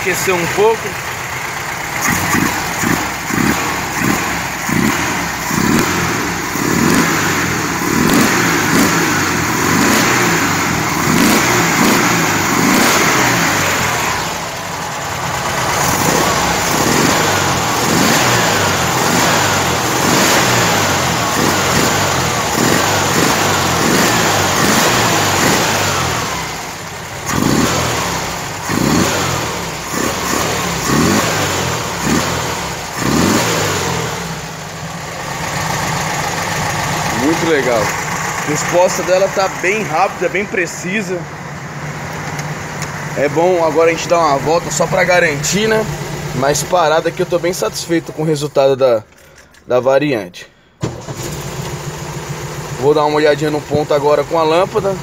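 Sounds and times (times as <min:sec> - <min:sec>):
car engine revving: 0:00.0 - 0:49.2, 0:50.2 - 0:55.0.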